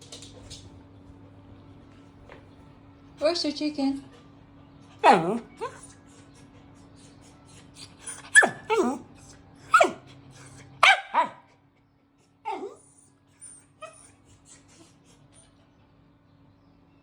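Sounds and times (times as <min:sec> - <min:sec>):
dog barking and yelping: 0:05.0 - 0:05.9, 0:07.7 - 0:09.1, 0:09.7 - 0:11.5, 0:12.5 - 0:14.8.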